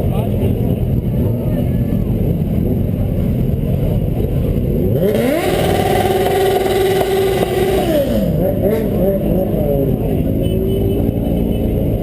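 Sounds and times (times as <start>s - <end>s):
motorcycle engine revving: 2.4s - 12.0s.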